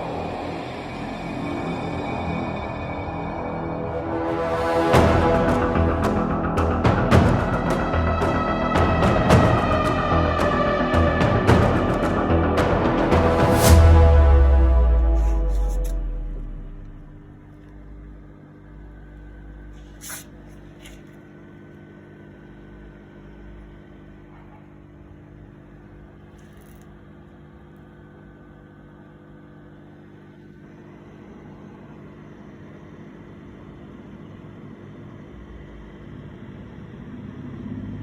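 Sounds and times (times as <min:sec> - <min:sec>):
low mains hum: 0:13.5 - 0:38.0.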